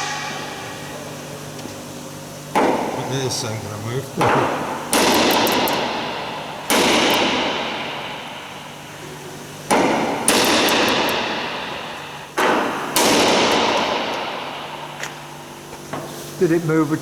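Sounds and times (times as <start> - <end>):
hammer blows on metal: 0.0 - 1.8.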